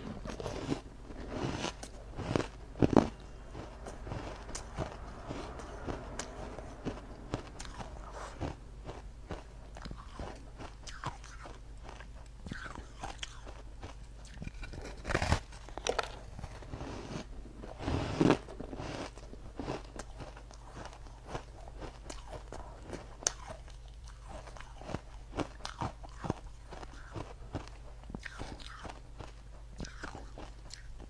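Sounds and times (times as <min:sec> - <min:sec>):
person crunching ice: 0:00.2 - 0:05.5, 0:12.5 - 0:23.6.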